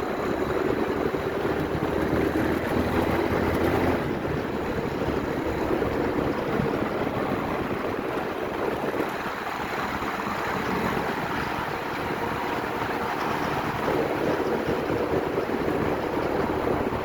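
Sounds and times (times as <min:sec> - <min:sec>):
motorcycle engine drone: 0:00.0 - 0:17.0
wind noise on microphone: 0:00.0 - 0:17.0.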